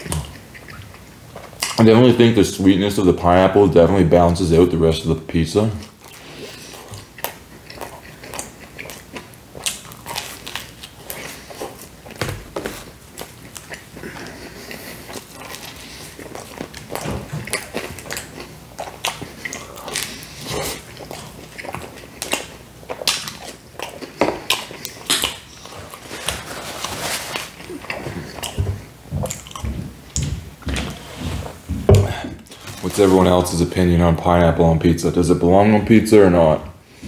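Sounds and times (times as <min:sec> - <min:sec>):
man chewing: 0:00.0 - 0:01.8, 0:05.8 - 0:33.1.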